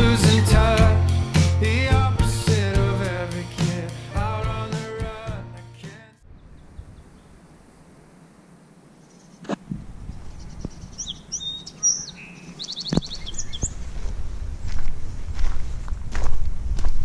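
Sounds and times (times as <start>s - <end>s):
small birds chirping: 6.3s - 8.0s, 9.0s - 13.8s.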